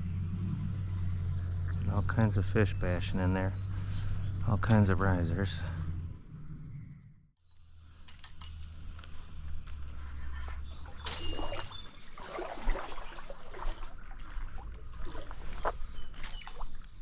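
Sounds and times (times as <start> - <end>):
rustles: 7.5 - 12.1
water splashing and sloshing: 10.6 - 17.0.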